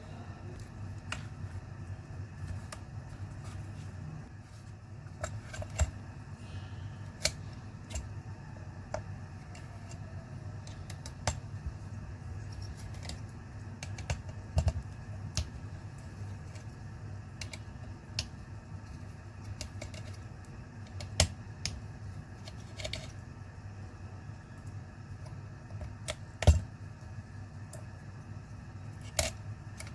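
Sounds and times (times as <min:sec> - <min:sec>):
steady low hum: 0:00.0 - 0:29.9
clicks and taps of laptop parts: 0:12.6 - 0:15.5.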